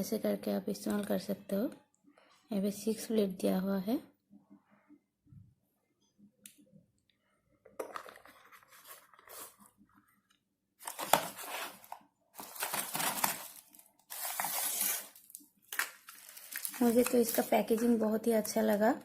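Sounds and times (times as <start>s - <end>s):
packaging crinkling and rustling: 7.8s - 9.8s, 10.8s - 18.9s.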